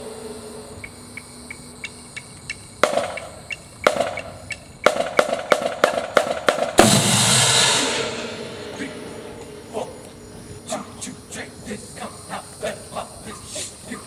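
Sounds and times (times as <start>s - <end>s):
sharp hammer-like knocks: 2.8s - 4.3s, 4.9s - 8.9s.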